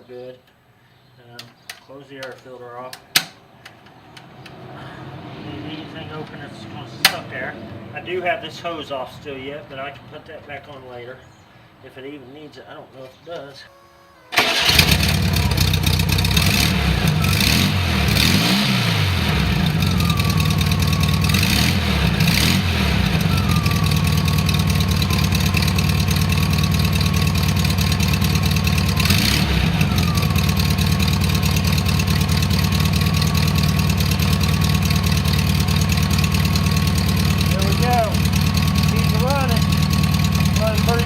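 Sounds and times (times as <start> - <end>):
car engine starting and revving: 14.3 - 41.0.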